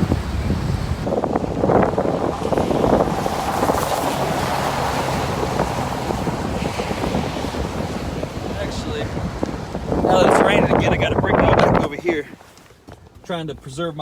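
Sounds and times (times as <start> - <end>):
waves washing in: 0.0 - 12.6
wind blowing across microphone: 0.0 - 14.0.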